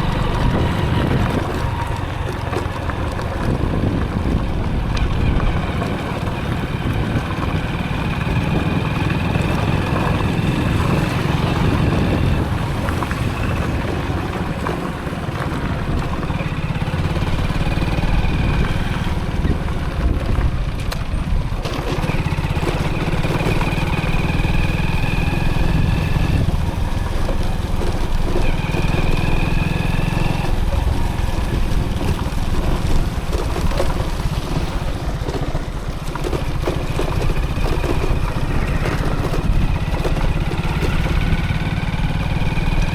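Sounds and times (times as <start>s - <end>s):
motorcycle engine rumble: 0.0s - 42.9s.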